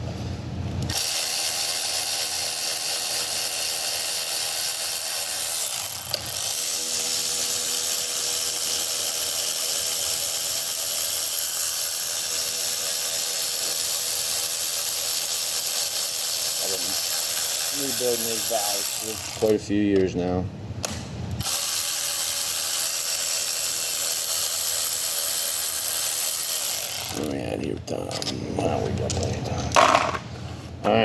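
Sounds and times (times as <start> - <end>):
machine whirring hiss: 6.6 - 19.7.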